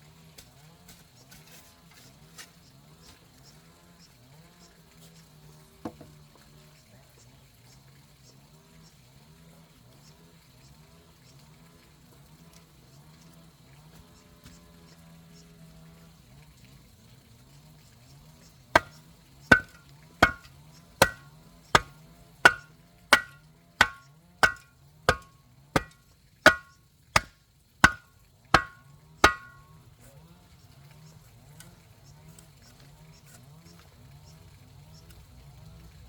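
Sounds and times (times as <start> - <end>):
hand tool knocking on hard surface: 5.9 - 6.1, 18.8 - 29.7.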